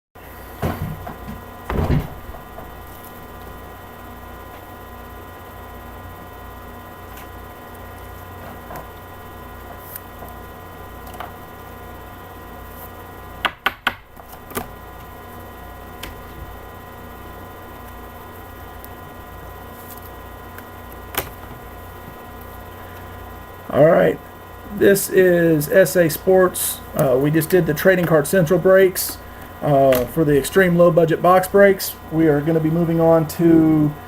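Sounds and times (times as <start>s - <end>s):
steady electrical hum: 0.2s - 34.0s
heavy thump: 1.7s - 2.4s.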